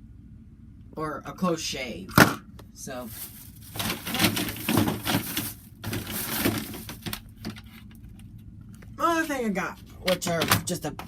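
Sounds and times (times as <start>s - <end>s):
packaging rustling and crackling: 3.0s - 8.4s.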